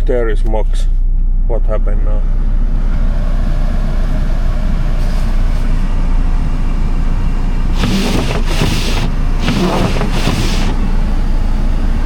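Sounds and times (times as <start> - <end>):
car engine idling: 0.1 - 12.0
loud rushing hissing noise: 7.8 - 10.9.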